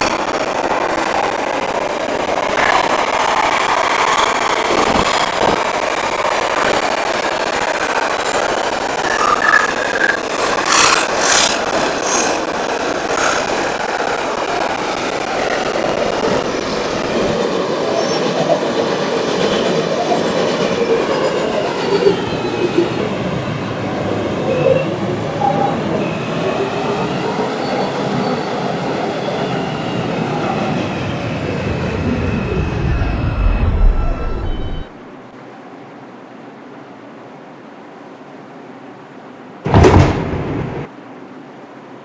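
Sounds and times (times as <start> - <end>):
subway train rumble: 0.0 - 42.0
wheels clacking over rail joints: 8.0 - 14.6.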